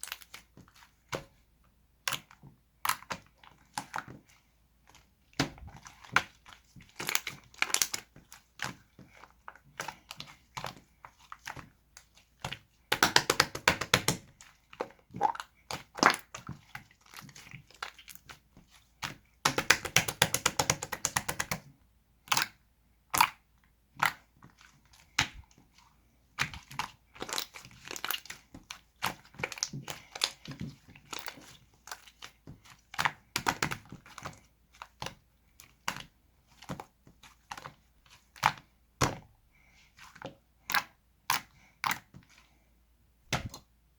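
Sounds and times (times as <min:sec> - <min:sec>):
slime squished by hand: 0:02.0 - 0:21.6, 0:26.3 - 0:39.2.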